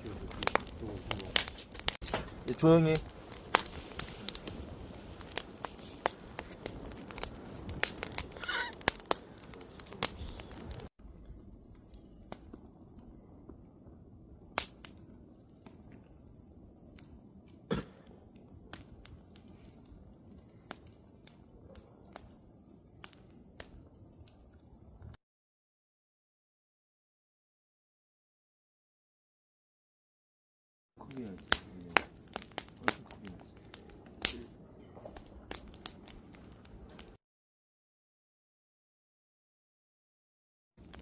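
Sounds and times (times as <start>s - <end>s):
campfire crackling and popping: 0.0s - 25.2s, 31.0s - 37.2s, 40.8s - 41.0s.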